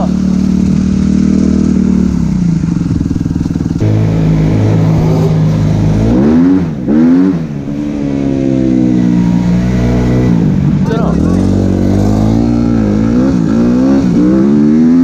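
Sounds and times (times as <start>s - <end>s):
motocross engine revving: 0.0s - 15.0s.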